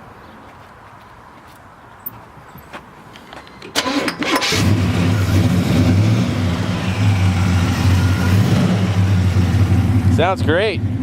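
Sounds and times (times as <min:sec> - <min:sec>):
car engine idling: 0:04.4 - 0:11.0.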